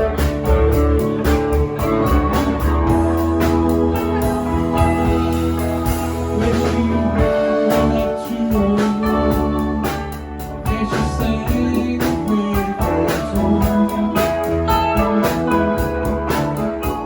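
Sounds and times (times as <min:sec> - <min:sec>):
electric guitar: 0:00.0 - 0:17.0
live rock band playing: 0:00.0 - 0:17.0.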